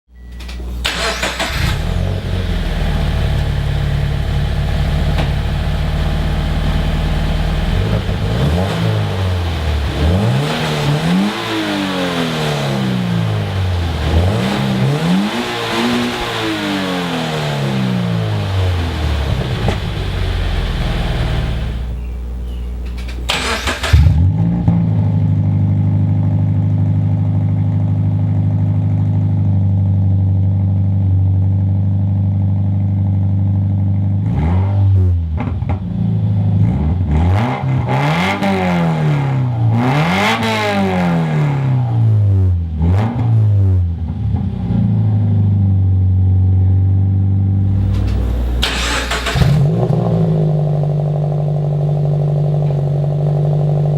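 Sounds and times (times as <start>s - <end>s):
car engine revving: 0.8s - 24.8s, 36.6s - 42.0s, 47.5s - 53.9s.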